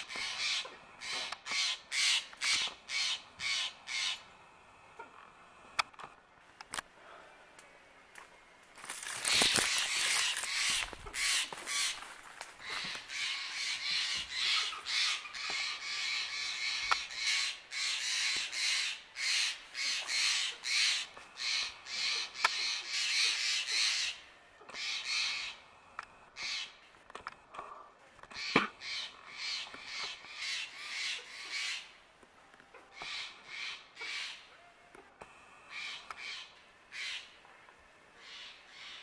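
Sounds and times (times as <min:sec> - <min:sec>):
bird harsh scratchy calls: 0:00.0 - 0:04.2, 0:08.9 - 0:24.2, 0:24.8 - 0:25.6, 0:26.4 - 0:26.8, 0:28.3 - 0:31.9, 0:35.7 - 0:37.4.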